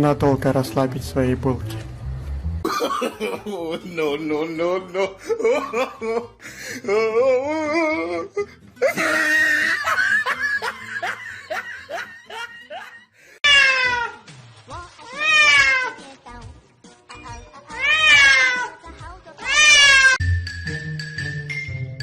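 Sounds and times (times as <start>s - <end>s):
background music: 0.0s - 22.0s
cat meowing: 13.4s - 14.2s, 15.1s - 16.0s, 17.6s - 20.2s.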